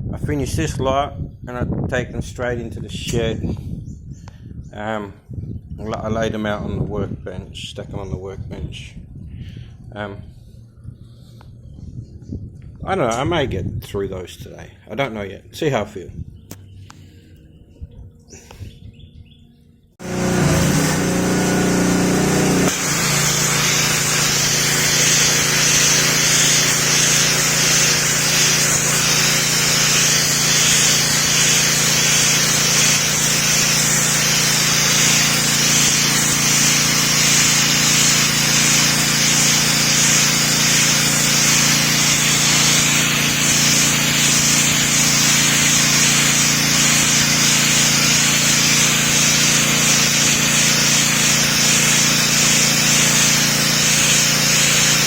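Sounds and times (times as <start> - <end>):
pressure washer motor hum: 20.0 - 55.0
water jet hissing on tiles: 20.0 - 55.0.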